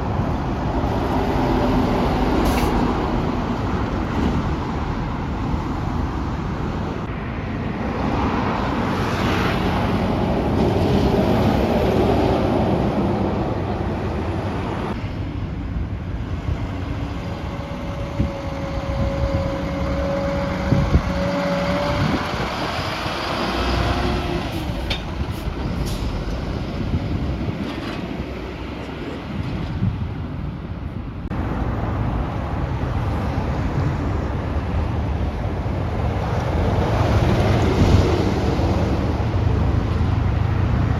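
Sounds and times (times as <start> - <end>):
heavy trucks on road: 0.0 - 40.9.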